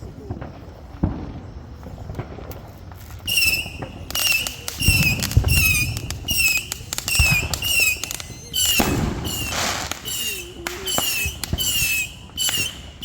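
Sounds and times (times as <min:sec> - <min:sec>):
firework booms: 0:00.3 - 0:13.0
firework whistles: 0:03.1 - 0:13.0.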